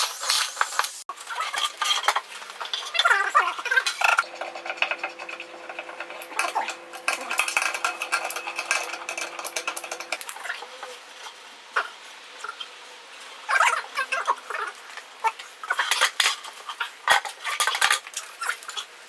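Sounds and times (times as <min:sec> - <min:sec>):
hard objects clicking and clinking: 0:01.6 - 0:10.6.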